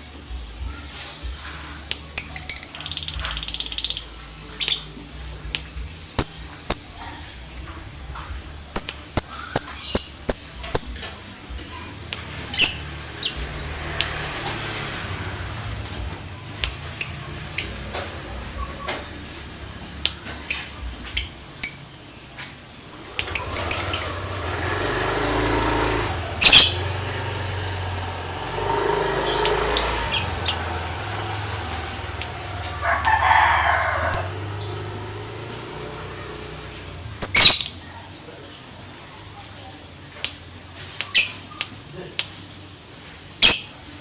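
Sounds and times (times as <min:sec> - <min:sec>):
lovebird clicking calls: 0:01.9 - 0:04.9.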